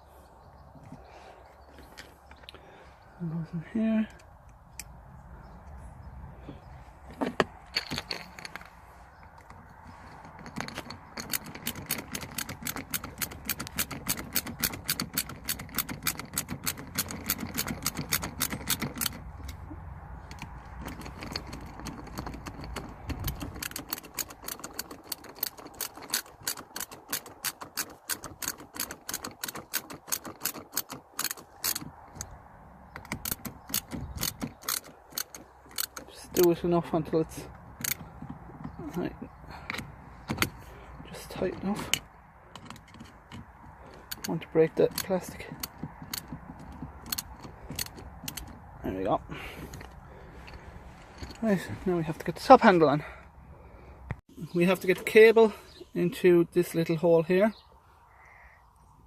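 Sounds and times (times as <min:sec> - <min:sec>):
screwdriver clicking: 0:20.3 - 0:32.3, 0:33.0 - 0:36.5, 0:44.9 - 0:48.6.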